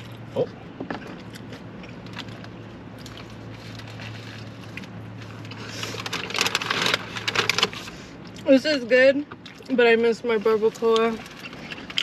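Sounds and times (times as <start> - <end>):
chewing and wet mouth sounds: 0.0 - 6.4, 9.2 - 12.0
crinkly rustle: 2.1 - 8.0.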